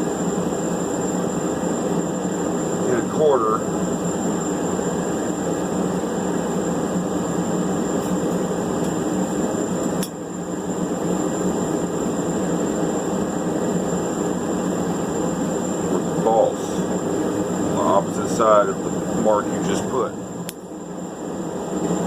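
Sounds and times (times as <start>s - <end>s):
shop equipment roaring: 15.8s - 20.7s.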